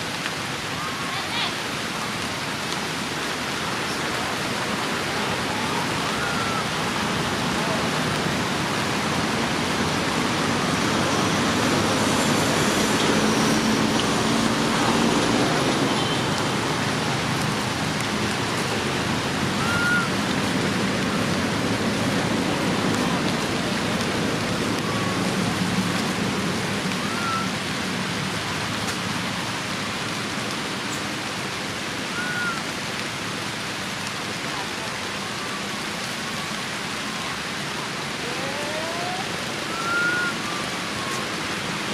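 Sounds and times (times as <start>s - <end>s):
steady rushing noise: 0.0s - 41.9s.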